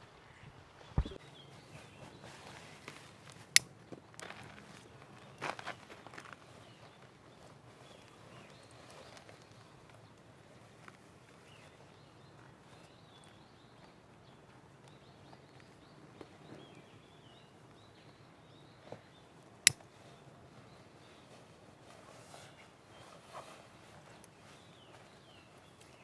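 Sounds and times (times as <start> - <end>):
birds chirping faintly: 0.0 - 10.2.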